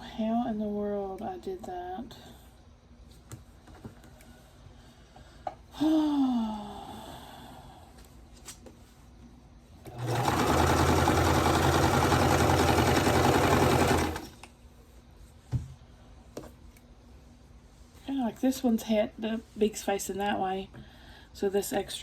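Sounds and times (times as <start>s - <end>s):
sewing machine running: 9.9s - 14.4s.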